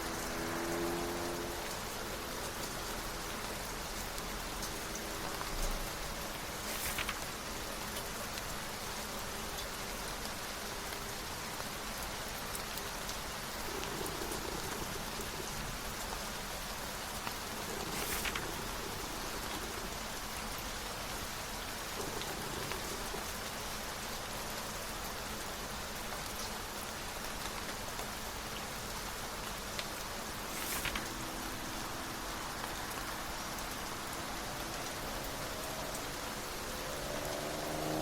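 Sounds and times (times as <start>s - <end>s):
steady rain: 0.0s - 38.0s
book pages turning: 6.4s - 7.5s, 17.5s - 19.9s, 30.4s - 31.5s.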